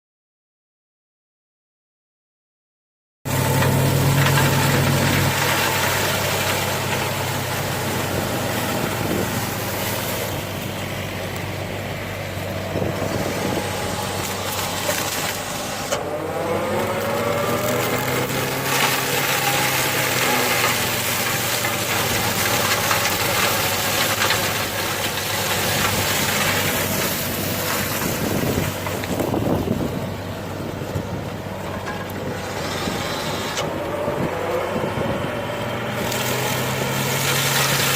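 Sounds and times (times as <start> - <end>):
diesel engine under load: 3.3 - 37.9
mulcher shredding grass: 3.3 - 37.9.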